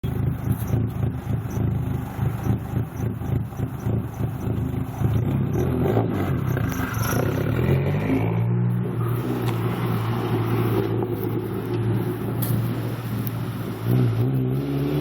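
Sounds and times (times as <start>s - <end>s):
turbocharged engine idling: 0.0s - 7.7s, 8.8s - 14.0s.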